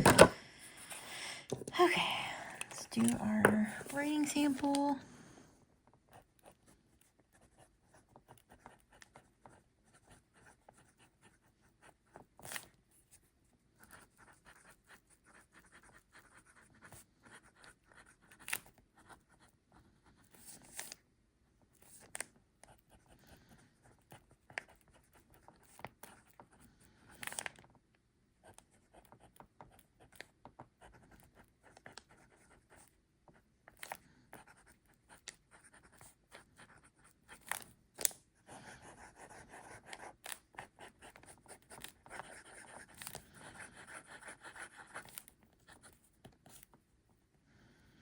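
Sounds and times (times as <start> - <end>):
fountain pen scratching on paper: 6.1 - 21.0, 21.7 - 27.4, 28.4 - 37.6, 38.4 - 46.8.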